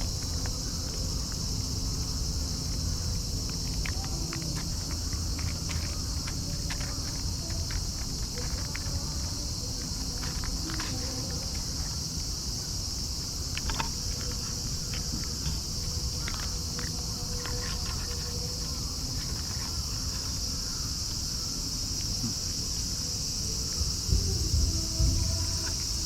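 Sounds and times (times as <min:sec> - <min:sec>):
insect chorus drone: 0:00.0 - 0:26.0.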